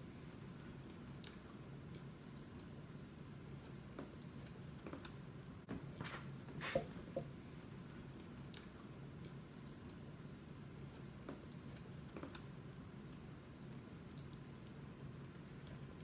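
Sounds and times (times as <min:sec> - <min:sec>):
person chewing food: 0:00.3 - 0:05.2.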